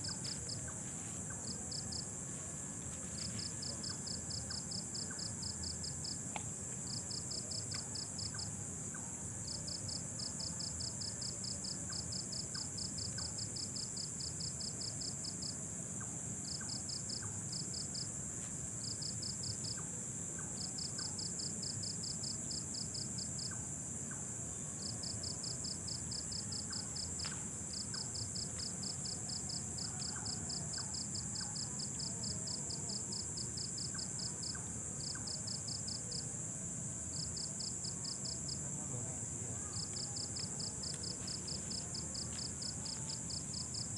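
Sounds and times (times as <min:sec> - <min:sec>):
high-pitched insect trill: 0:00.0 - 0:43.9
insect chirping in rapid pulses: 0:00.0 - 0:43.9.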